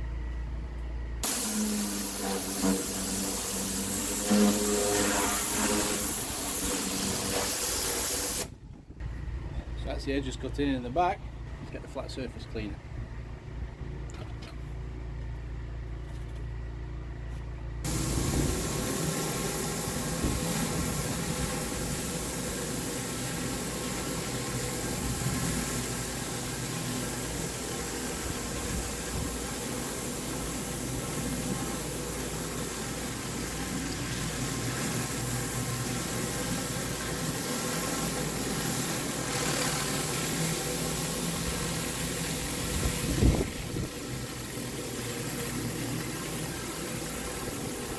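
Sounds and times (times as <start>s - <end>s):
pressure washer engine running: 1.2s - 8.5s, 17.8s - 47.9s
water spray hissing: 1.2s - 8.5s, 17.9s - 47.9s.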